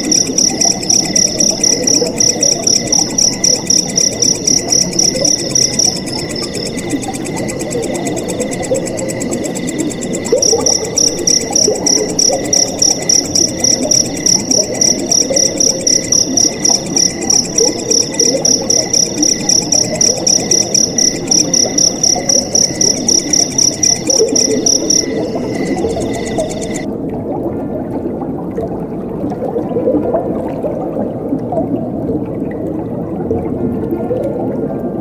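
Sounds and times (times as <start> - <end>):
cricket chirping: 0.0 - 26.9
insect trills: 0.0 - 26.9
flowing water: 0.0 - 35.0.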